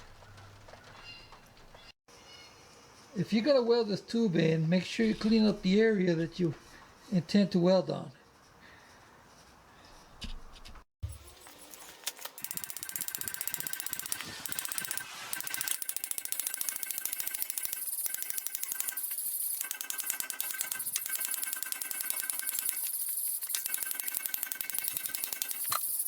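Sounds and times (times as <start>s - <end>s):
wire wheel scrubbing steel: 12.4s - 26.0s.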